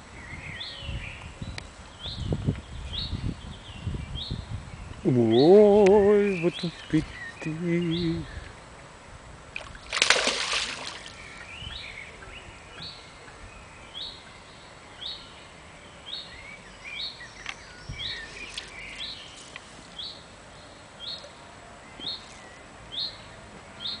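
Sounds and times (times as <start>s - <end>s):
soft low bird chirps: 10.6s - 24.0s.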